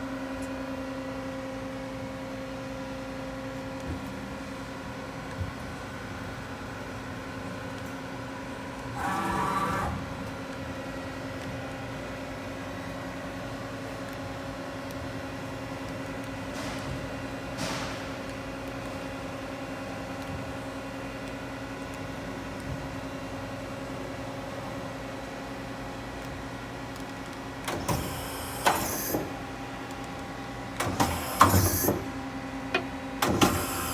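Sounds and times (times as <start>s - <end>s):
brief mechanical noise: 9.0s - 10.0s, 30.8s - 32.1s
lathe humming: 9.0s - 10.0s.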